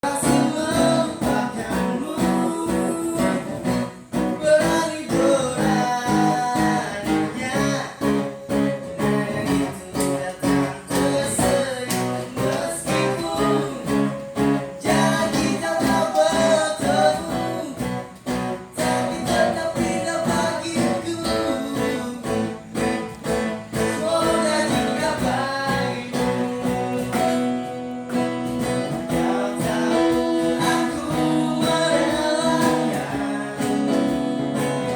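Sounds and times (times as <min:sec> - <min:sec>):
acoustic guitar strumming: 0:00.0 - 0:34.9.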